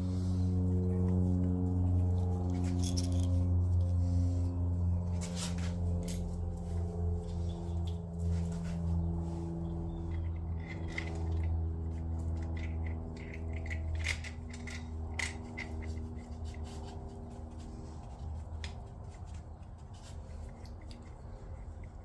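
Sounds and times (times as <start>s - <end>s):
low hum: 0.0s - 22.0s
small metal tools clicking: 10.1s - 16.8s.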